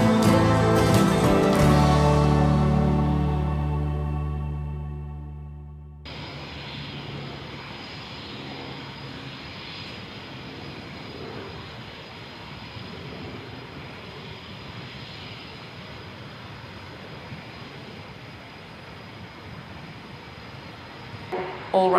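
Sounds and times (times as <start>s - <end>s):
high engine whine: 0.0s - 21.9s
jet engines running: 6.1s - 21.9s.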